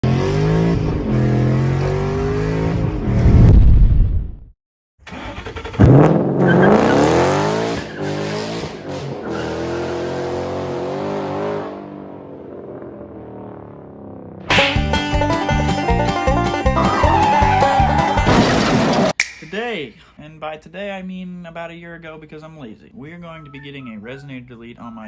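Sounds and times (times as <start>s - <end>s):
loud car engine exhaust: 0.0s - 3.2s
engine revving: 0.0s - 3.5s, 5.1s - 14.5s.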